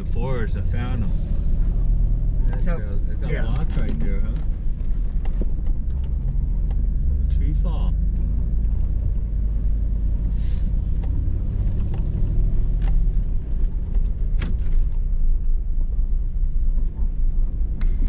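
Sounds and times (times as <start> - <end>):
engine rumbling inside vehicle: 0.0 - 18.0.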